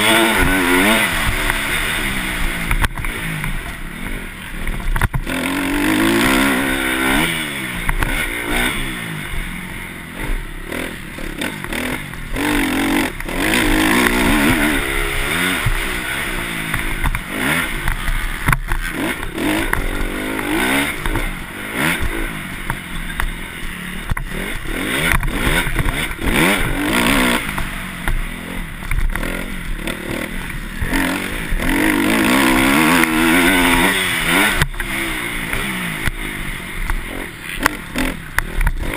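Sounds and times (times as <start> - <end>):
motocross engine revving: 0.0 - 38.9.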